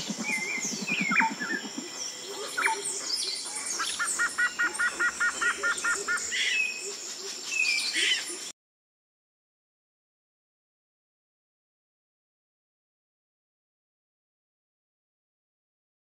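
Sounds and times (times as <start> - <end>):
forest birds calling: 0.0 - 8.5.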